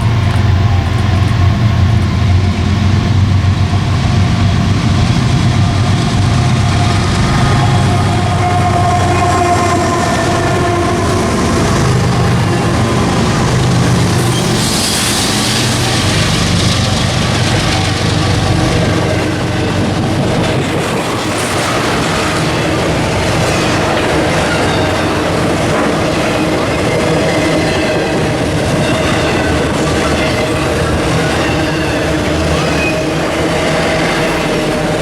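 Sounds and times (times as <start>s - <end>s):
wheels rolling on rails: 0.0s - 3.0s
train engine drone: 0.0s - 35.0s
wheel squeal: 14.2s - 15.8s.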